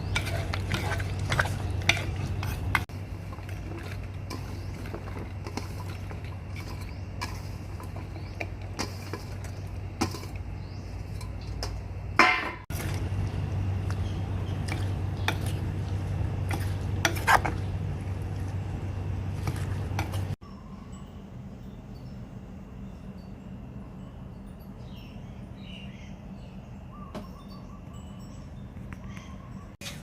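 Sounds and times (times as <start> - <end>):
utensils clinking against dishes: 0.0 - 13.1, 13.8 - 18.0
steady low hum: 0.0 - 30.0.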